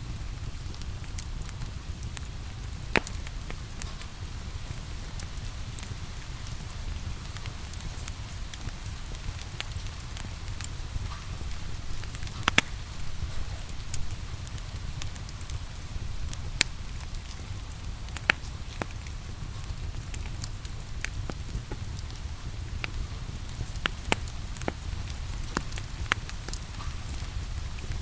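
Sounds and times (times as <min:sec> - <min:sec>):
wood fire crackling and popping: 0:00.0 - 0:28.0.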